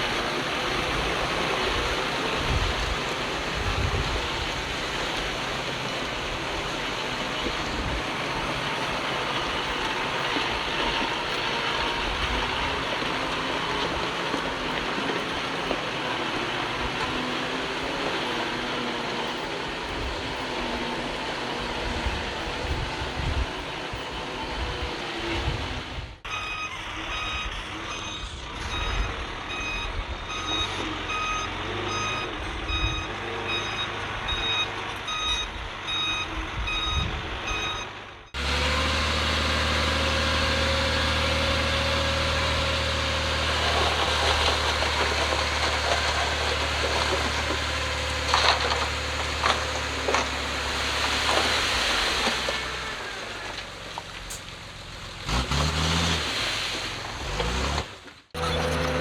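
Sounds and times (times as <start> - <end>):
diesel engine drone: 0.0 - 59.0
reversing alarm beeping: 26.3 - 38.4.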